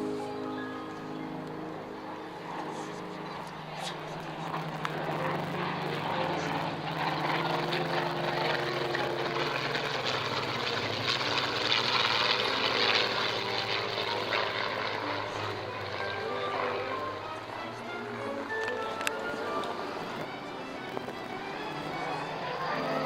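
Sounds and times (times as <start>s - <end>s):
aircraft engine hum: 0.0s - 23.0s.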